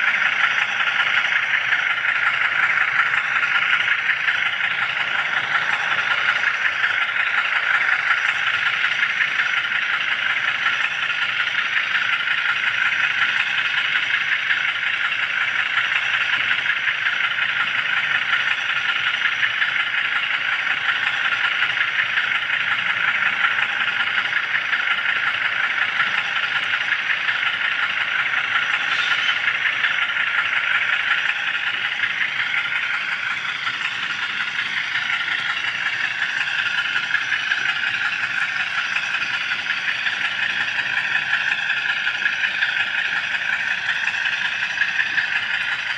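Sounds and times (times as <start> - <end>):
model train wheels rattling on rails: 0.0 - 45.9.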